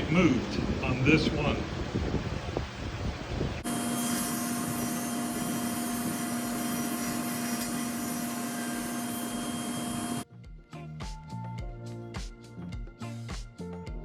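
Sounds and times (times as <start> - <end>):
power tool motor whining: 3.6 - 10.2.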